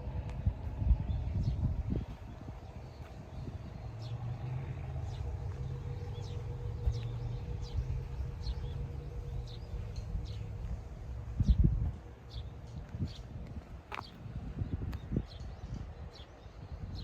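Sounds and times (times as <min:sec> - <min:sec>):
diesel truck engine idling: 0:00.0 - 0:13.0
birds chirping: 0:00.0 - 0:17.0.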